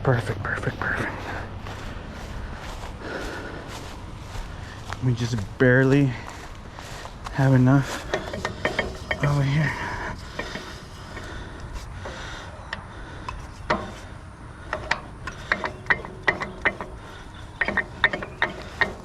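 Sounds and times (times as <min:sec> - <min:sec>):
winch clicking and ratcheting: 0:08.0 - 0:19.0.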